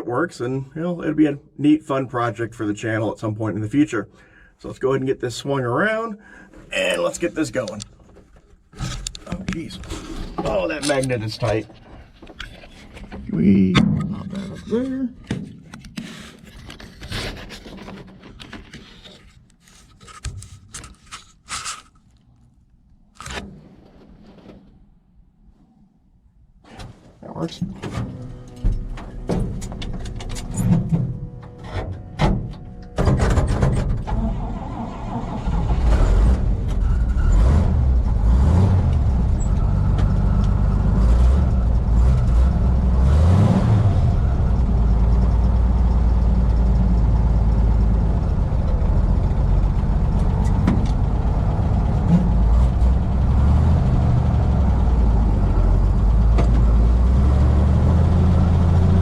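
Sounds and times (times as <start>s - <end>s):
truck engine starting and revving: 27.9s - 59.0s.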